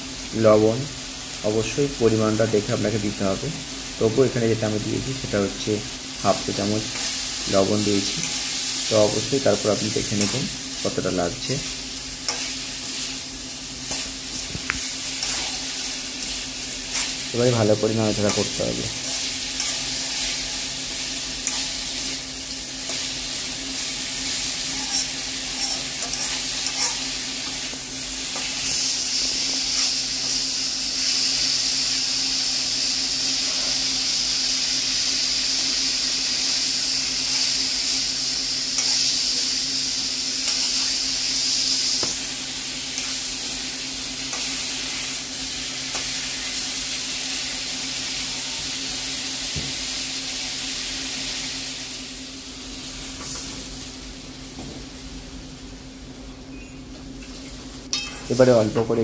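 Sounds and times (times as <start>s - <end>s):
vegetables sizzling in oil: 0.0s - 59.0s
metal spatula scraping pan: 24.7s - 27.0s.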